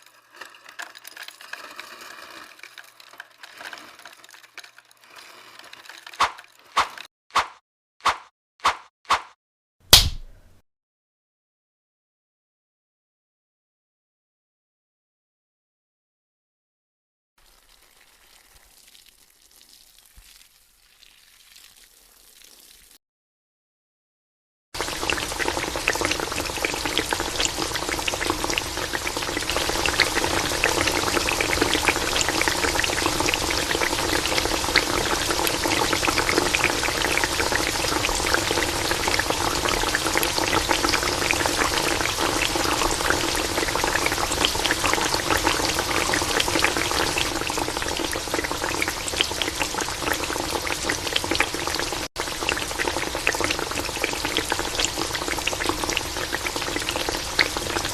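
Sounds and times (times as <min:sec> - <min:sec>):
food deep-frying in hot oil: 0:00.0 - 0:07.1, 0:17.4 - 0:23.0, 0:24.8 - 0:57.9.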